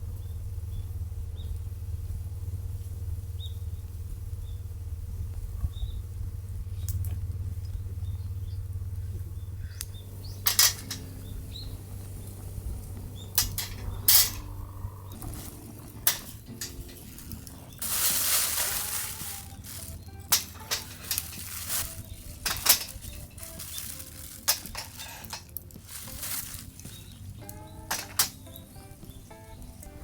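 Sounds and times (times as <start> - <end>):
low hum: 0.0 - 30.0
cooking gear clicks and knocks: 10.2 - 11.3, 13.2 - 30.0.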